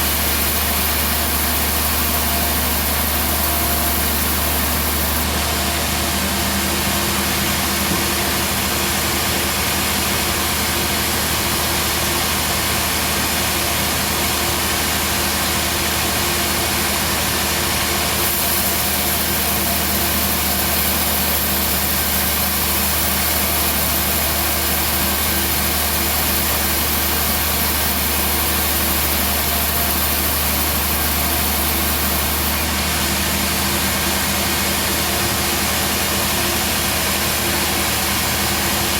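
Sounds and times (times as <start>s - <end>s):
high hiss: 0.0s - 5.2s, 18.2s - 32.7s
band sawmill engine drone: 0.0s - 5.6s, 18.2s - 33.4s.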